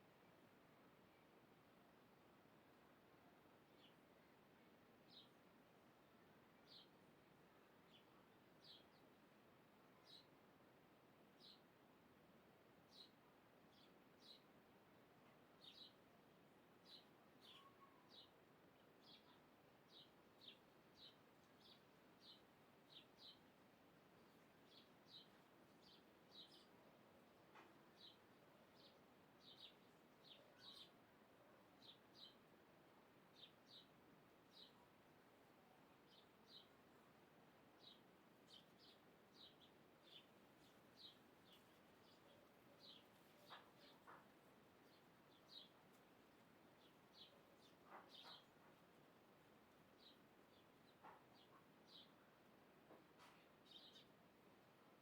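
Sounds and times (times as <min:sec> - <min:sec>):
low steady hiss: 0:00.0 - 0:55.0
bird chirping: 0:16.8 - 0:23.5, 0:24.2 - 0:26.9, 0:27.5 - 0:31.0, 0:31.8 - 0:32.4, 0:33.3 - 0:33.9, 0:34.5 - 0:34.8, 0:35.6 - 0:36.8, 0:37.8 - 0:45.9, 0:46.8 - 0:48.9, 0:50.0 - 0:52.2, 0:53.3 - 0:54.1.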